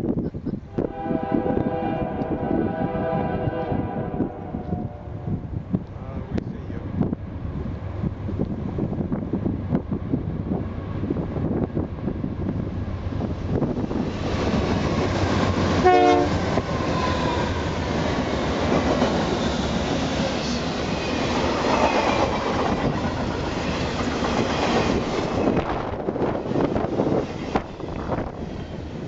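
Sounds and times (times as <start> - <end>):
train air horn blast: 0.7 - 5.4, 15.8 - 17.6
train wheels rolling on rails: 5.5 - 29.0.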